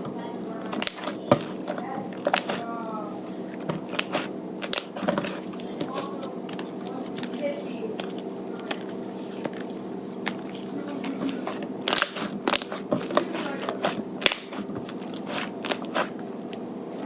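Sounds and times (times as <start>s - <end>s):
slime crackling and popping: 0.7s - 1.5s, 3.8s - 7.3s, 11.8s - 12.8s.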